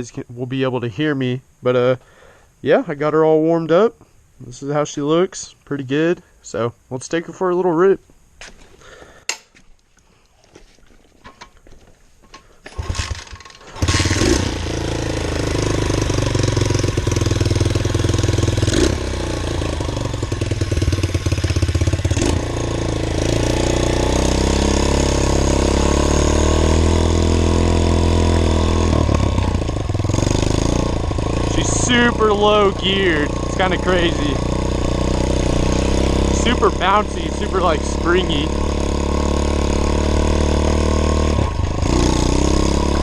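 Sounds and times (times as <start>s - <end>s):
pit bike engine revving: 12.7s - 43.0s.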